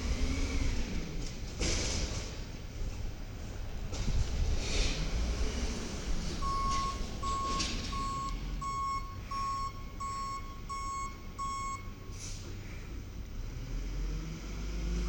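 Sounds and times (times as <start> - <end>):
diesel engine running: 0.0 - 15.0
reversing alarm beeping: 6.4 - 12.2.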